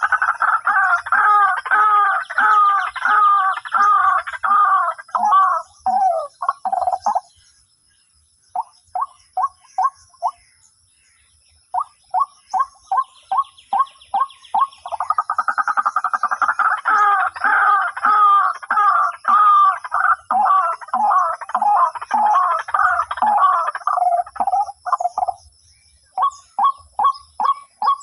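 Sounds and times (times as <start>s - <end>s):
waterhen calling: 0.0s - 7.3s, 11.8s - 25.4s.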